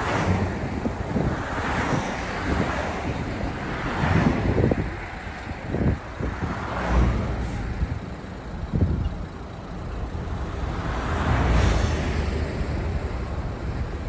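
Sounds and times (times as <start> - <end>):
wind buffeting microphone: 0.0 - 9.3
passing road traffic rumble: 0.0 - 14.0.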